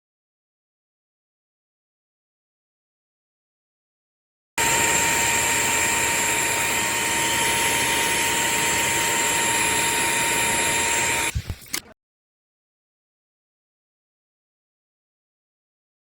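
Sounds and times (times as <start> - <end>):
floor cleaner motor whine: 4.6 - 11.4.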